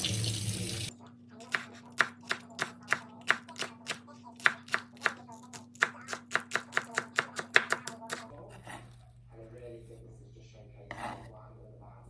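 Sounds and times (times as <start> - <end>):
knife chopping on cutting board: 1.5 - 8.9.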